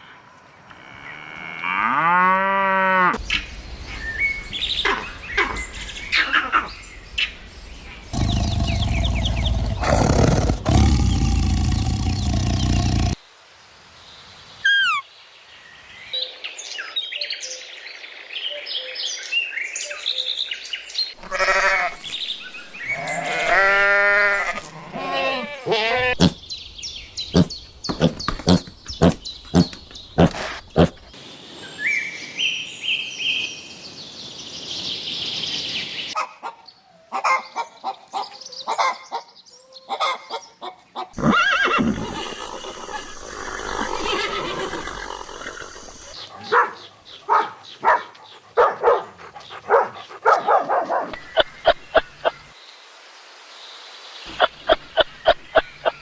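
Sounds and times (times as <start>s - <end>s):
animal bleating: 21.2s - 22.1s, 22.9s - 26.4s, 41.2s - 46.2s.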